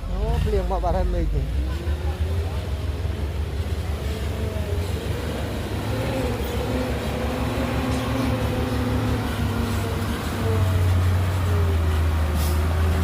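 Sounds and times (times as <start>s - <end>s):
heavy machinery diesel engine running: 0.0s - 13.0s.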